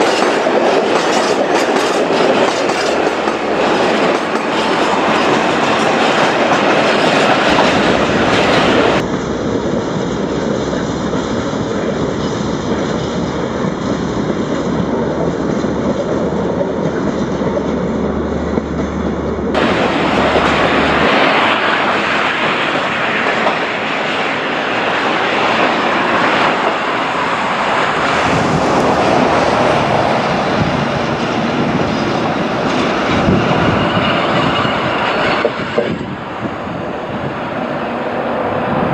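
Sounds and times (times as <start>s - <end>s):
train wheels clattering over rail joints: 0.0s - 19.0s, 19.6s - 36.2s
locomotive engine hum: 0.9s - 38.9s.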